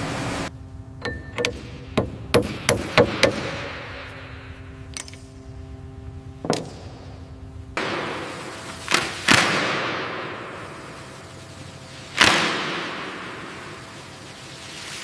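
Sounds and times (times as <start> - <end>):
faint steady hum: 0.0 - 15.0
metal ringing strikes: 1.0 - 5.4.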